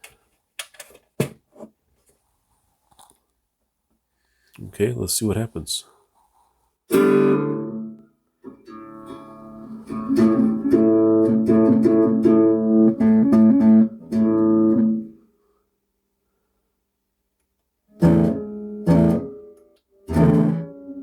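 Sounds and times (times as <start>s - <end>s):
guitar strumming and picked notes: 6.9s - 15.2s, 17.9s - 21.0s.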